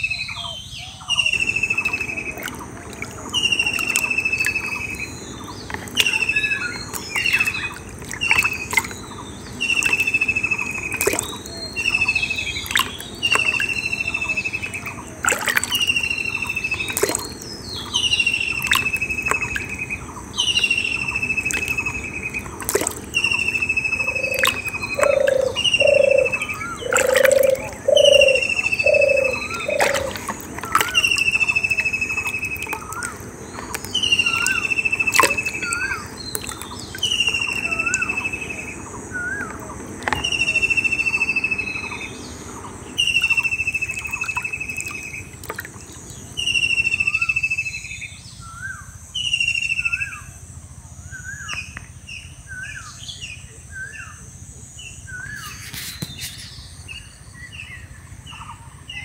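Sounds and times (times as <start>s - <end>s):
bird whistling call: 0.0s - 2.5s, 5.9s - 14.8s, 23.2s - 33.2s, 33.8s - 36.2s, 36.9s - 39.6s.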